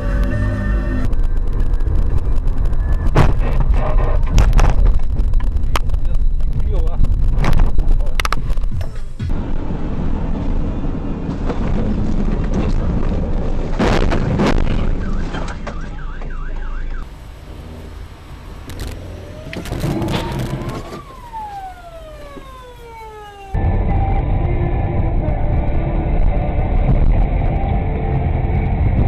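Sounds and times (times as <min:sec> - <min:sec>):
emergency vehicle siren: 0:00.0 - 0:03.0, 0:14.9 - 0:17.1, 0:19.1 - 0:26.8
vehicle and road rumble: 0:00.0 - 0:29.0.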